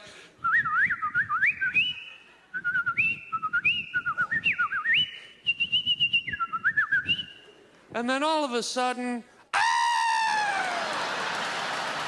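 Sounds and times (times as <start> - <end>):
man whistling birdsong: 0.5 - 7.5.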